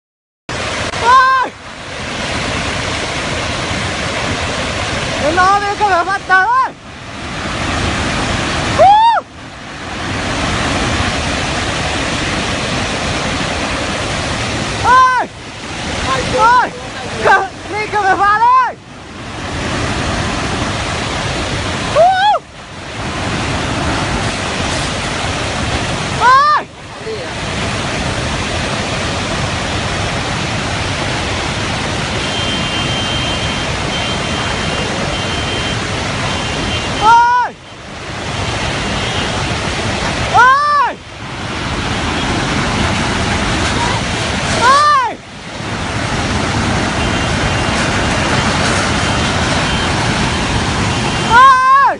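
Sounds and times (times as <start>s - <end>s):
floodwater rushing: 0.5s - 51.9s
person exclaiming: 1.0s - 1.6s, 8.8s - 9.2s, 14.8s - 15.3s, 16.2s - 18.8s, 22.0s - 22.4s, 26.2s - 27.3s, 37.0s - 37.6s, 40.3s - 41.0s, 44.6s - 45.2s, 51.3s - 51.9s.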